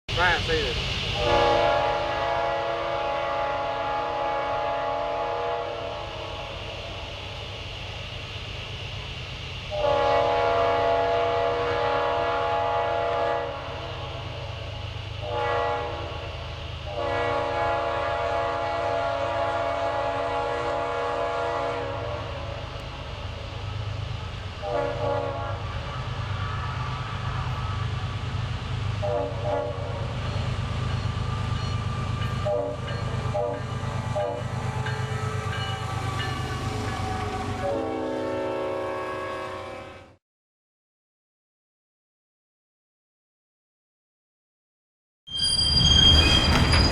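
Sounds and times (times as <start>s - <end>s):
train rumbling: 0.1s - 40.0s, 45.3s - 46.9s
train horn blasts: 1.2s - 6.3s, 9.7s - 14.0s, 15.2s - 22.6s, 24.6s - 26.0s, 28.9s - 30.1s, 31.7s - 40.2s.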